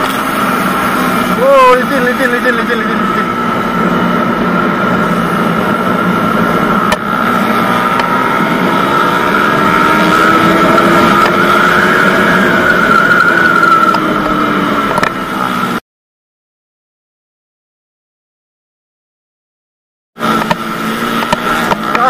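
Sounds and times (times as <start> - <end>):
motorcycle engine running hard: 0.0 - 15.8, 20.2 - 22.0
wind rushing over microphone: 2.9 - 15.8.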